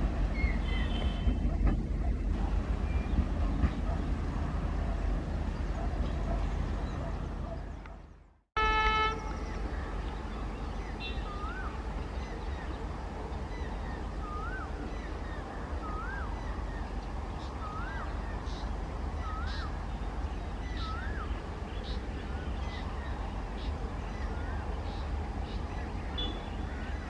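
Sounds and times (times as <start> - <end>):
passing train rumble: 0.0 - 27.0
train horn toot: 0.6 - 1.5, 8.6 - 9.4
bird whistled call: 26.1 - 26.6.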